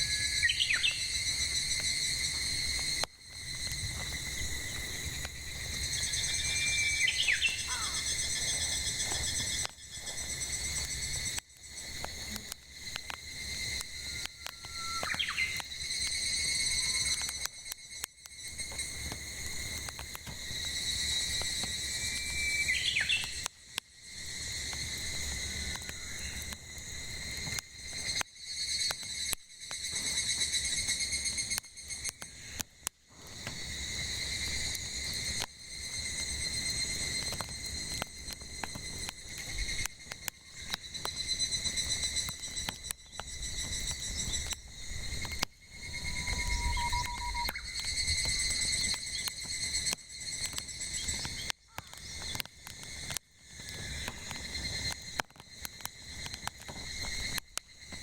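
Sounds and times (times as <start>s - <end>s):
bird call: 0.0s - 1.1s, 6.4s - 8.2s, 14.4s - 15.7s, 22.6s - 23.4s, 46.0s - 48.5s
cicadas singing: 0.0s - 58.0s
firewood crackling and popping: 0.0s - 58.0s.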